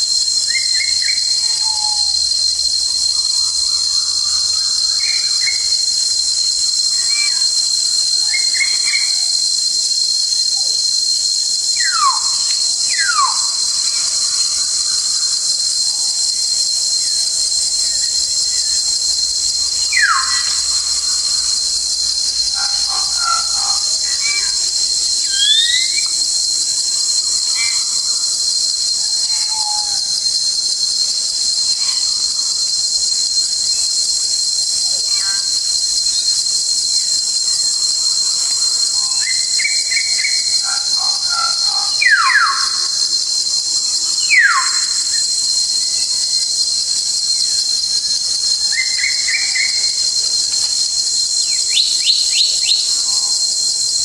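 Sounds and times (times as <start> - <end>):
insect chorus: 0.0 - 54.0.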